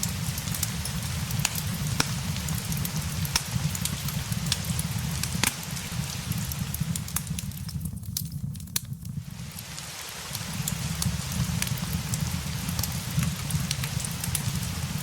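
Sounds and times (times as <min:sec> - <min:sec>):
deep low rumble: 0:00.0 - 0:09.4
steady rain: 0:00.0 - 0:15.0
wood fire crackling: 0:00.0 - 0:15.0.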